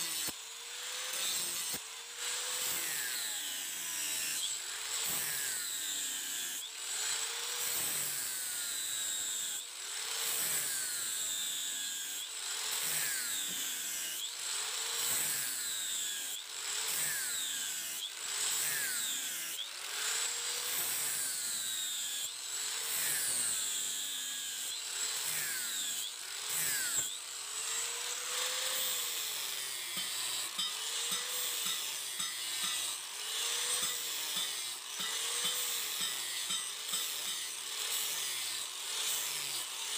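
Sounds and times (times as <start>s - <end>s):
hand tool rasping: 20.8s - 39.9s.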